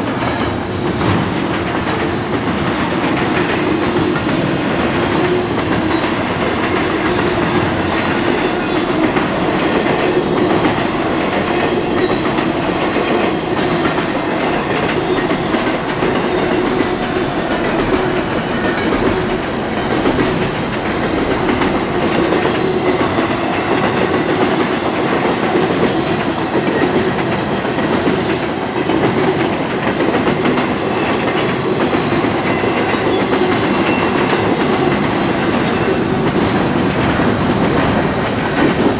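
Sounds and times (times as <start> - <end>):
freight train rumbling past: 0.0 - 38.9.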